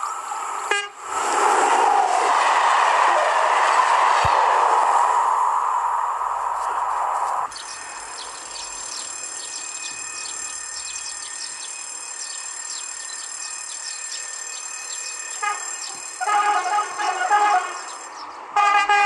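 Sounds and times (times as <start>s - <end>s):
steady high-pitched whine: 0.0s - 18.2s
loud rushing noise: 0.3s - 8.2s
train horn: 0.7s - 1.0s, 15.4s - 17.9s, 18.6s - 19.0s
birds chirping: 7.5s - 18.5s.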